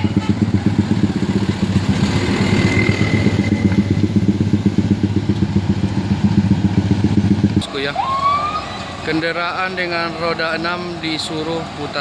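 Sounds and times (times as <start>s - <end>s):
vehicle engine idling: 0.0s - 7.9s.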